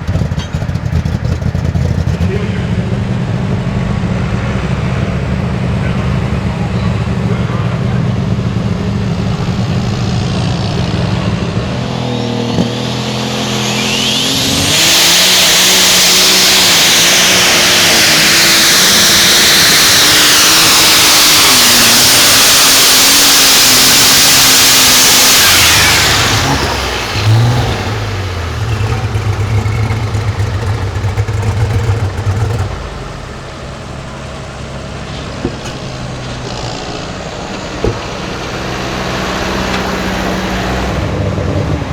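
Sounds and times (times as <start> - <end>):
pulling vehicle engine revving: 0.0 - 41.9
wide hiss: 12.7 - 41.0.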